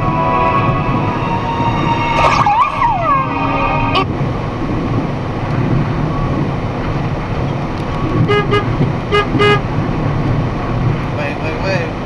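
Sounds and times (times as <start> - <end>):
vehicle rumbling on road: 0.8 - 12.0
short horn toots: 8.2 - 9.7.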